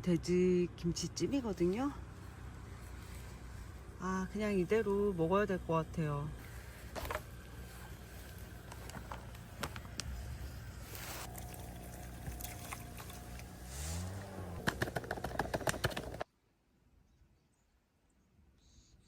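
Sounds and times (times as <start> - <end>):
sharp clicks and clatter: 14.6 - 16.2.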